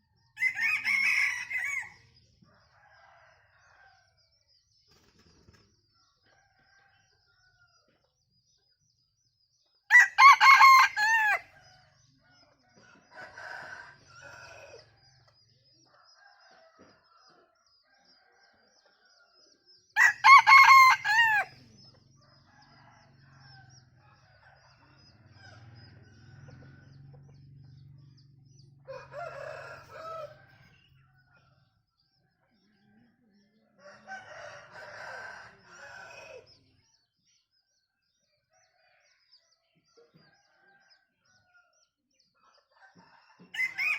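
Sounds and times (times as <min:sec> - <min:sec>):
rooster crowing: 0:00.4 - 0:02.0, 0:09.9 - 0:11.6, 0:20.0 - 0:21.6, 0:28.8 - 0:30.8, 0:33.8 - 0:36.4, 0:43.0 - 0:43.9.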